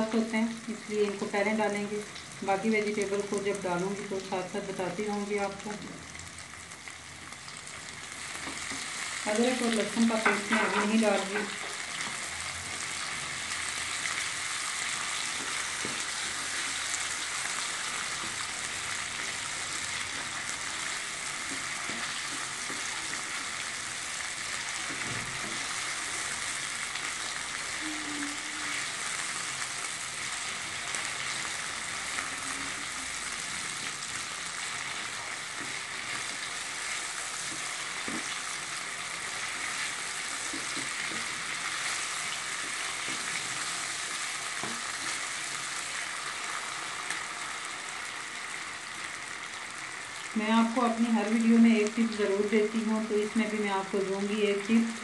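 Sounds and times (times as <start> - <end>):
potatoes frying in oil: 0.0 - 55.0
spatula stirring in wok: 10.1 - 27.4, 29.8 - 46.1.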